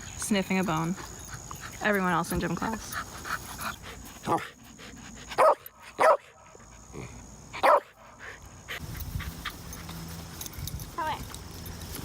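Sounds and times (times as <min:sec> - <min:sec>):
dog barking: 0:05.4 - 0:06.4, 0:07.6 - 0:08.0.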